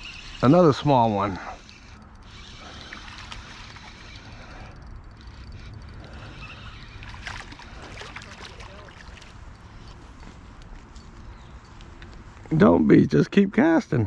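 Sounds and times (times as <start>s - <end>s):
flowing creek water: 6.3s - 9.6s
water splashes: 7.0s - 9.4s.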